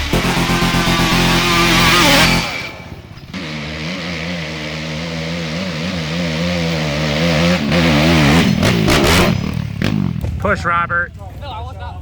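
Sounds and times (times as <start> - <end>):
music: 0.0 - 2.9
off-road vehicle engine running: 0.0 - 12.0.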